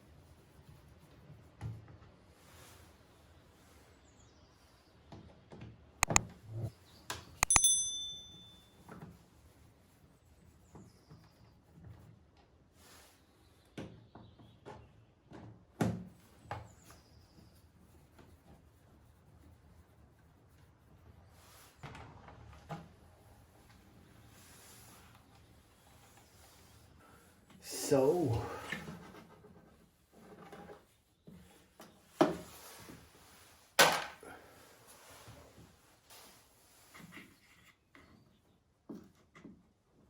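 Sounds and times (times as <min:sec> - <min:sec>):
clicks and knocks of tools: 0:07.4 - 0:08.4
short metallic ring: 0:07.4 - 0:08.8.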